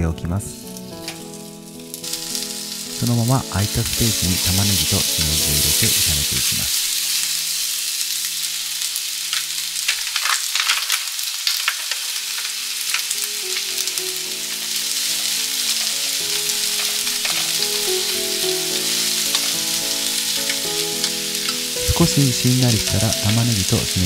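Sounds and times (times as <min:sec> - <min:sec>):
food sizzling in a frying pan: 0:00.0 - 0:24.0
spatula clicking and scraping: 0:15.7 - 0:18.2.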